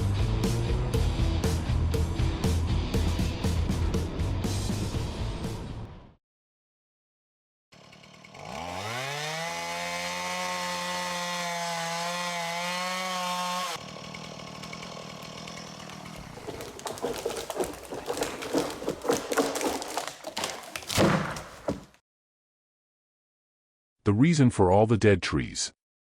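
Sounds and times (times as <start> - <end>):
chainsaw engine revving: 7.8 - 21.8
knocking: 16.2 - 22.0.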